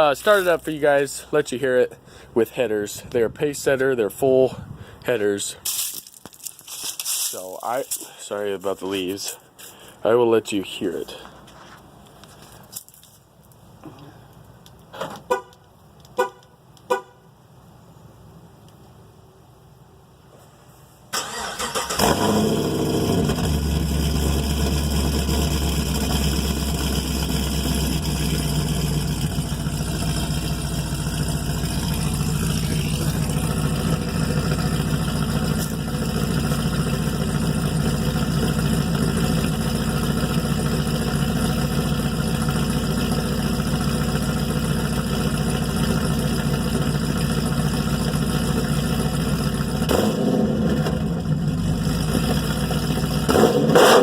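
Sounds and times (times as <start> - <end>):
car engine starting and idling: 21.1 - 54.0.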